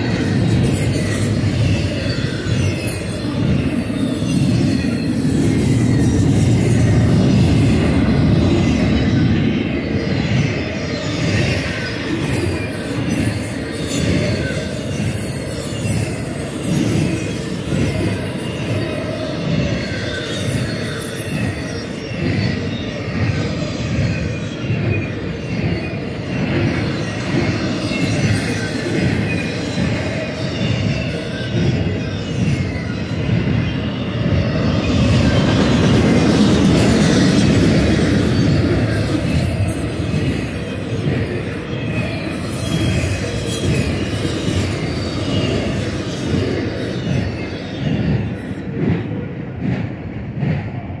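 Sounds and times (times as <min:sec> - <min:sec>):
wheel squeals: 0:00.0 - 0:49.1
freight train rolling past: 0:00.0 - 0:51.0.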